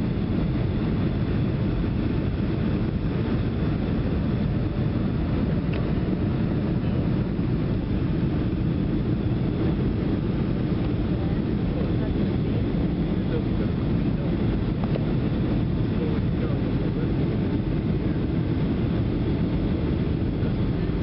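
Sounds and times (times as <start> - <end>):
airliner cabin engine rumble: 0.0 - 21.0.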